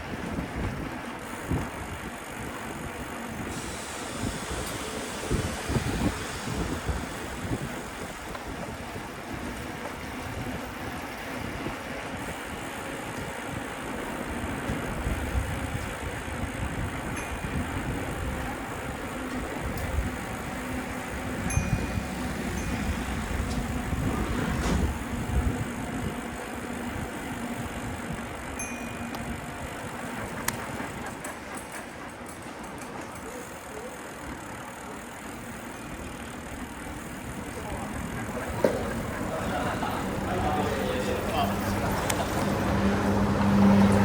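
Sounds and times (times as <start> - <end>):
wind buffeting microphone: 0.0 - 32.0
street traffic: 0.0 - 44.0.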